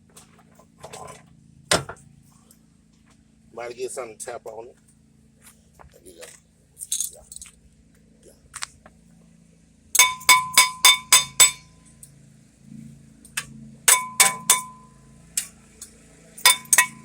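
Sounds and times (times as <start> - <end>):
metal tool striking brake rotor: 10.0 - 11.7, 13.4 - 15.6, 16.4 - 17.0.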